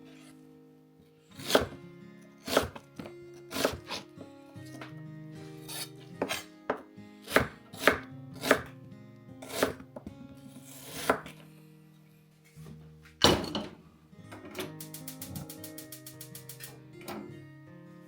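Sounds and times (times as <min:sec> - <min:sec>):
knife chopping on cutting board: 0:01.4 - 0:01.8, 0:02.4 - 0:04.0, 0:05.7 - 0:08.7, 0:09.4 - 0:09.8, 0:10.6 - 0:11.3
knife scraping hiss: 0:14.8 - 0:16.8.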